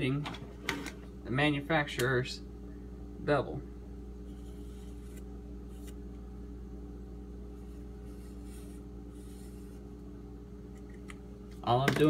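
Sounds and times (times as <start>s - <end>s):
electrical hum: 0.0s - 12.0s
marker scratching on steel: 4.2s - 6.0s, 7.6s - 9.8s.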